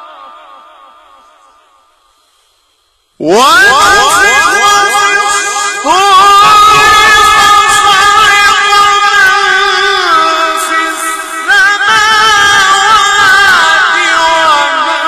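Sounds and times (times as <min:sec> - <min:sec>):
man chanting: 0:03.2 - 0:15.0.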